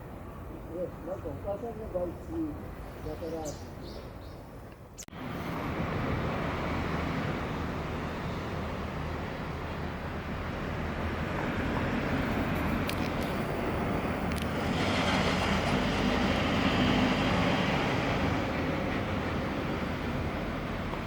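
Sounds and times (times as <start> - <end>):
passing vehicle rumble: 5.1 - 21.0.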